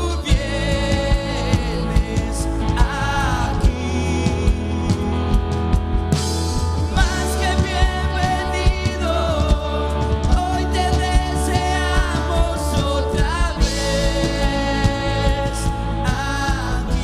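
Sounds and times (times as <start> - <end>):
sustained bass: 0.0 - 17.0
person singing melody: 6.8 - 17.0.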